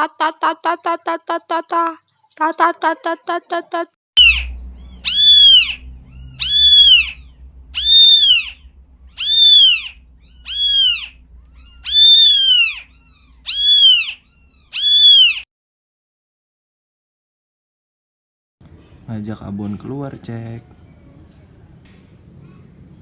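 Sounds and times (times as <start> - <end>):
cat meowing: 4.2 - 15.4.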